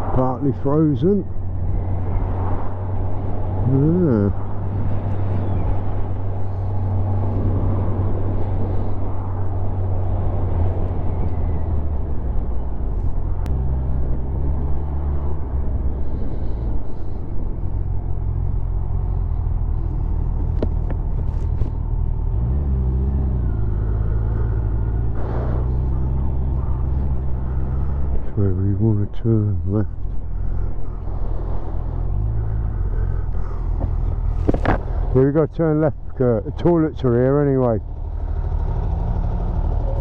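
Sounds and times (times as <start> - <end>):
motorcycle engine at road speed: 0.0 - 40.0
wind rush over microphone: 4.4 - 28.3.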